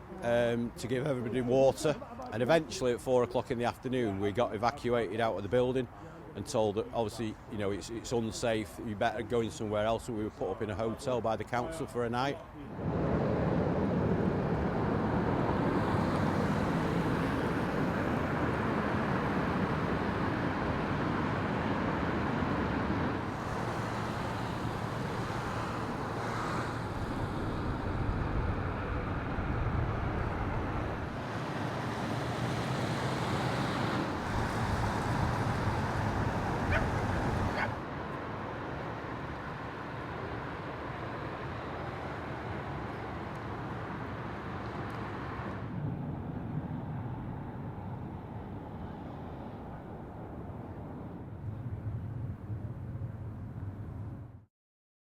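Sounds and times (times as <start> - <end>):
traffic rushing: 12.7 - 51.9.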